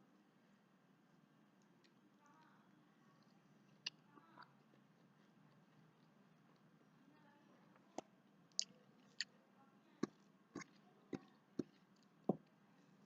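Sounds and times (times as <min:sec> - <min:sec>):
mouth clicks and smacks chewing: 0:10.0 - 0:12.2.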